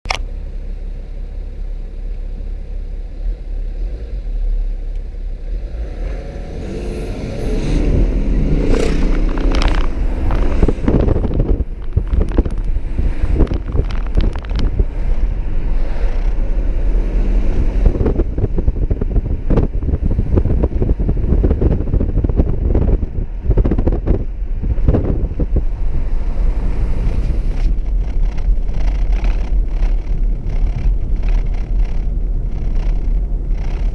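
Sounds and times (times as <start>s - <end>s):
road and wind noise: 0.0s - 33.9s
diesel engine accelerating: 0.1s - 33.9s
rustling and knocking in car: 8.8s - 14.9s, 27.0s - 33.9s.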